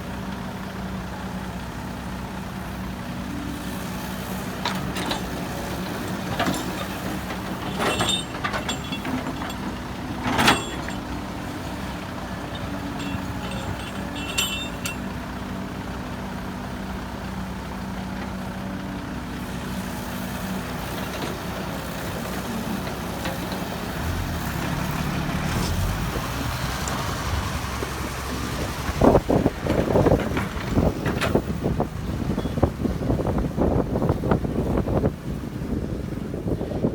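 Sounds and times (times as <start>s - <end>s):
diesel machinery engine running: 0.0s - 36.9s
sharp metallic clanks: 6.3s - 11.2s, 12.5s - 15.2s
loud knocking and crunching: 12.4s - 15.1s.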